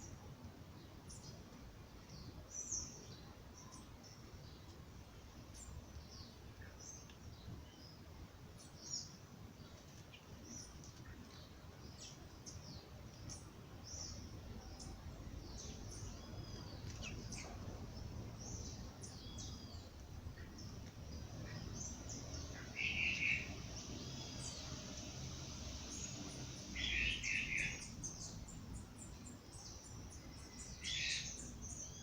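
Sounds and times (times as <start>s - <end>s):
birds chirping: 2.0s - 32.0s
low background rumble: 11.3s - 32.0s
whistled bird notes: 21.6s - 24.6s, 25.9s - 28.4s.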